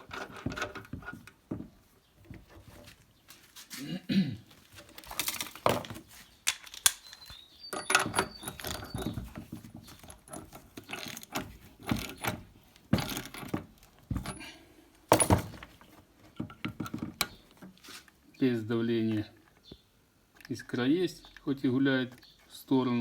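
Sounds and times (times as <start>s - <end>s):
metallic clinks and rattles: 4.9s - 14.5s.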